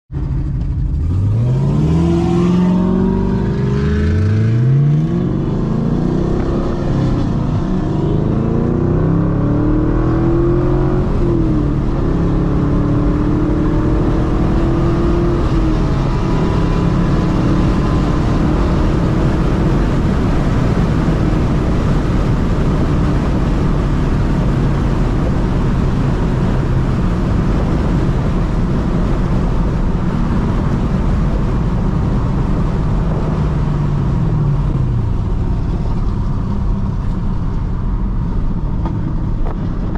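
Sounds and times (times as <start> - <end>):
car engine revving: 0.1 - 39.9.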